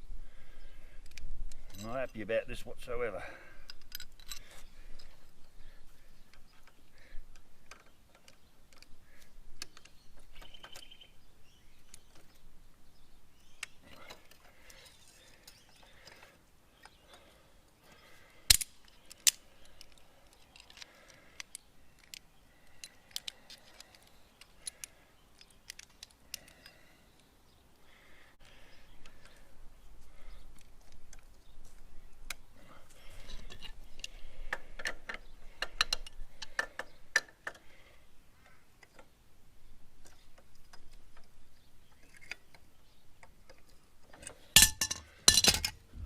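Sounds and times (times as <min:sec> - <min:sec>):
hand tools clinking on metal: 0:44.2 - 0:45.8.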